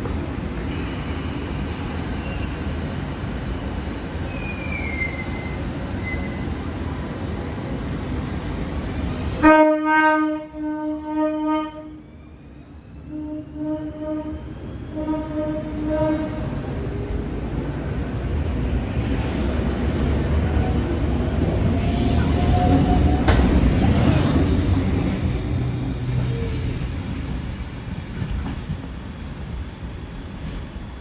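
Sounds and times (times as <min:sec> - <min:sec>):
electric train rumbling: 0:00.0 - 0:31.0
train horn blasts: 0:09.4 - 0:12.0, 0:13.1 - 0:16.5
wheel squeals: 0:21.8 - 0:25.0.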